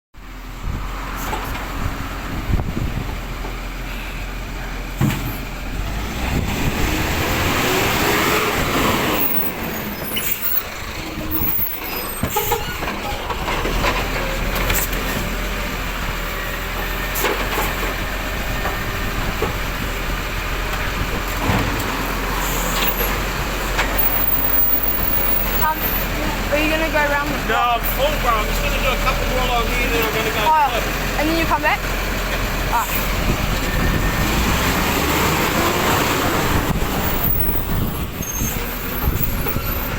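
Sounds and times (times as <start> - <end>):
truck diesel engine revving: 0.4 - 39.9
sharp clunks and knocks: 5.0 - 5.5.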